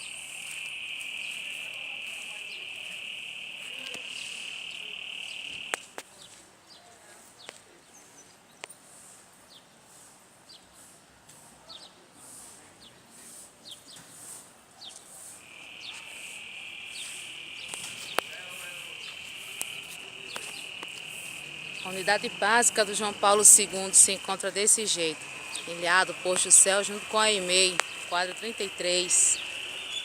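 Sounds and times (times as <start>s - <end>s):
crickets trilling: 0.0s - 6.0s, 15.4s - 30.0s
sharp clicks: 17.0s - 21.8s, 27.6s - 28.1s.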